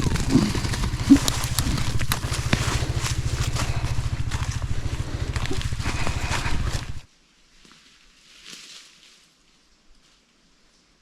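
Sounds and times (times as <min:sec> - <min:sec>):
off-road vehicle engine running: 0:00.0 - 0:07.1
faint outdoor background: 0:00.0 - 0:08.4.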